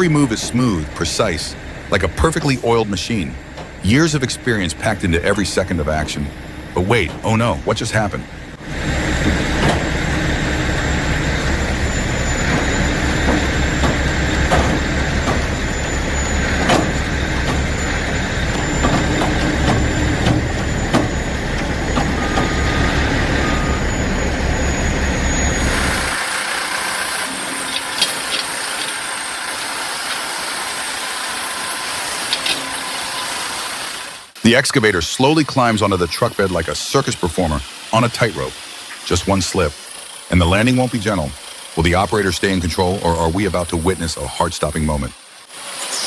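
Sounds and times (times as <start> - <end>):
metal clanks: 0.0 - 26.2
heavy machine engine rumbling: 0.0 - 30.9.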